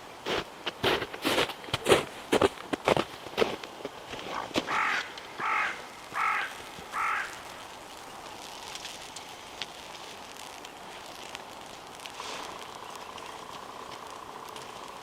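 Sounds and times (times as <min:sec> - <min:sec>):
crow cawing: 0:04.7 - 0:07.7.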